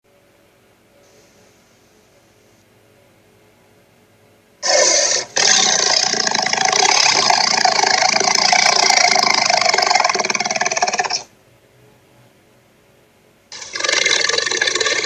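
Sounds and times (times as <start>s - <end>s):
loud harsh rattling: 4.6s - 11.3s.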